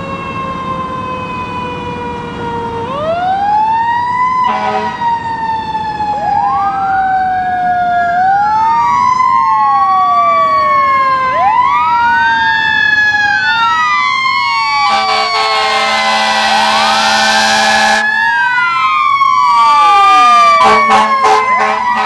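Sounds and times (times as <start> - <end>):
emergency sirens wailing: 0.0 - 22.0
loud steady horn blast: 4.5 - 5.1, 14.9 - 18.1, 20.4 - 22.0.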